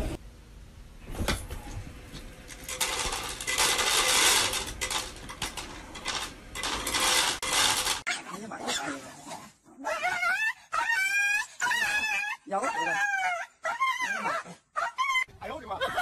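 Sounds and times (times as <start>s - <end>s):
kibble clattering into tray: 2.5s - 8.0s.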